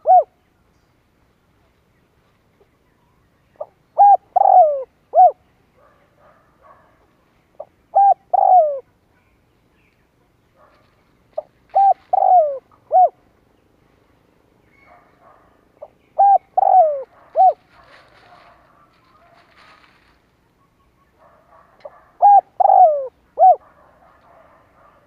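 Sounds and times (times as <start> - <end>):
dove cooing: 0.0 - 0.4, 3.6 - 5.5, 7.6 - 8.9, 10.8 - 13.2, 14.8 - 25.0.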